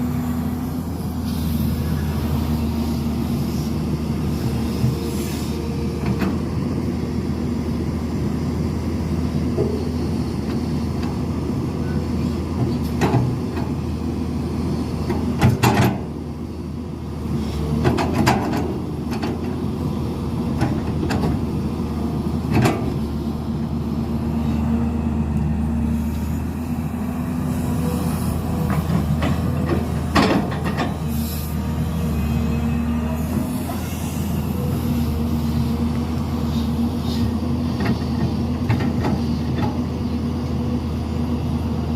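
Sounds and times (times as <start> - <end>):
diesel machinery running: 0.0 - 41.9.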